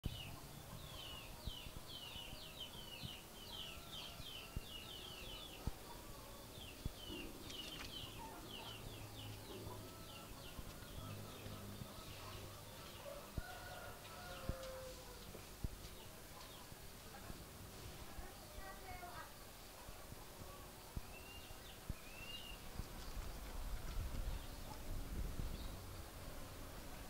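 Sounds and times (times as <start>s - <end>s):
small bird chirping: 0.1s - 13.5s.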